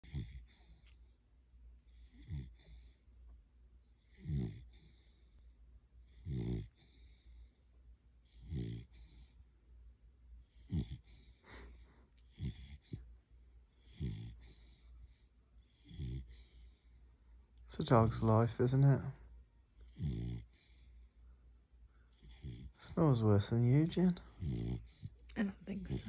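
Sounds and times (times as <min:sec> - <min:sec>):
dog snoring: 0:00.0 - 0:01.2, 0:01.9 - 0:03.1, 0:04.0 - 0:07.6, 0:08.2 - 0:09.5, 0:10.4 - 0:17.0, 0:17.7 - 0:19.2, 0:19.8 - 0:21.2, 0:22.1 - 0:26.0.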